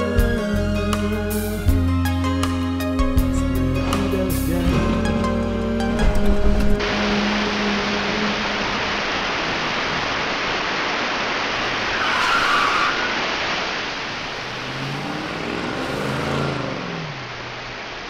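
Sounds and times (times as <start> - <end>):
tyres hissing on wet road: 6.8 - 18.0
car engine hum passing: 14.1 - 18.0.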